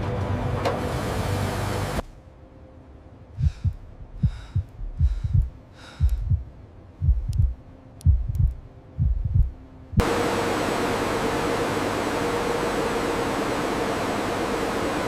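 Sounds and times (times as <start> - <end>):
heartbeat thumps: 3.4 - 10.0
loud rushing noise with hum: 10.0 - 15.0.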